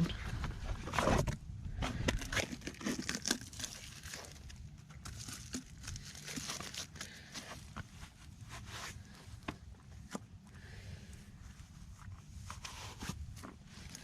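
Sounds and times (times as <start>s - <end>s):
packaging crinkling and tearing: 0.9s - 7.8s.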